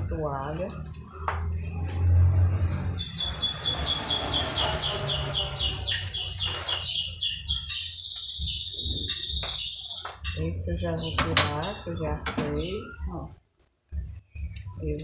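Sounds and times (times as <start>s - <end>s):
low hum: 1.0s - 7.2s
small bird chirping: 2.9s - 11.7s.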